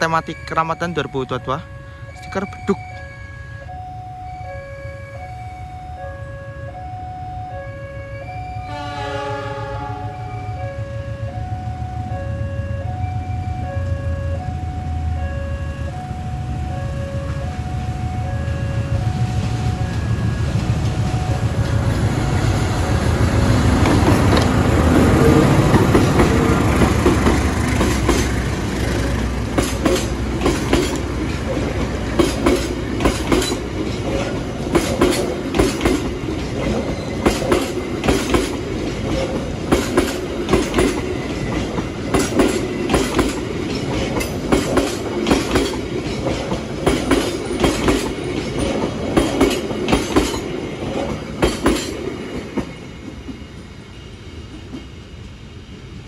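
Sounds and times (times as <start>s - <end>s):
locomotive engine rumble: 10.9s - 55.5s
train wheels clattering over rail joints: 23.8s - 53.4s.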